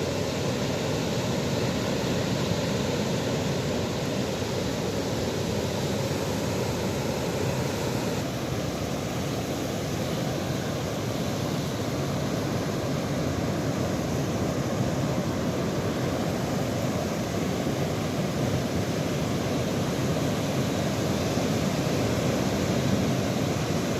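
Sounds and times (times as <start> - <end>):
rushing water: 0.0 - 23.9.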